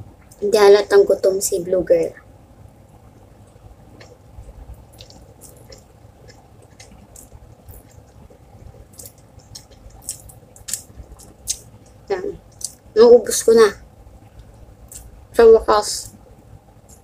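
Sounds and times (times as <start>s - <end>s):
fingers squishing food: 3.5s - 12.9s
wet chewing and mouth clicks: 3.5s - 12.9s, 14.2s - 15.2s.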